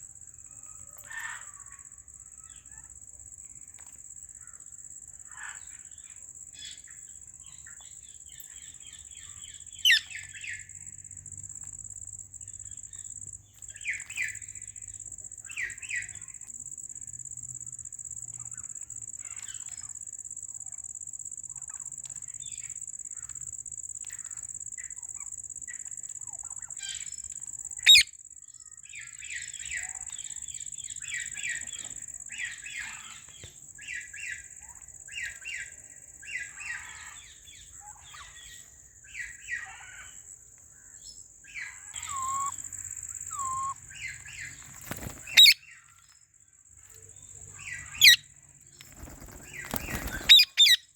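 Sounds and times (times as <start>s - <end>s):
parrots chattering: 9.8s - 10.2s, 27.8s - 28.1s, 41.6s - 44.6s, 45.2s - 45.8s, 47.6s - 48.2s, 49.0s - 50.9s
loud sharp parrot calls: 27.8s - 28.1s, 45.3s - 45.7s, 49.8s - 50.9s.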